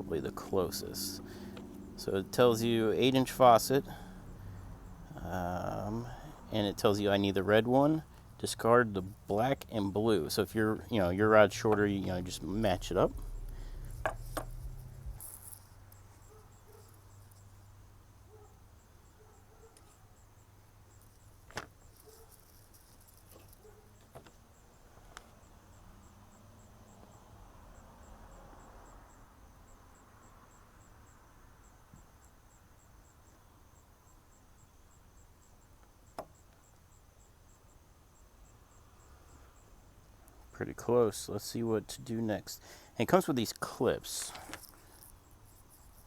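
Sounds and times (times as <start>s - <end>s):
high-pitched insect chirping: 9.1s - 18.1s.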